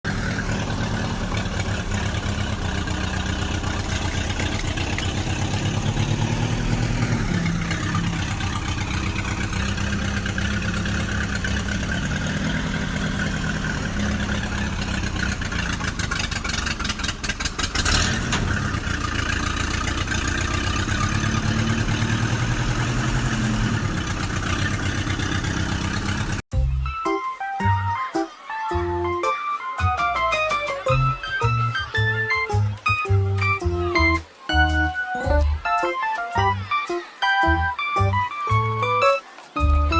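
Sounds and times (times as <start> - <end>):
tractor engine running: 0.0 - 26.8.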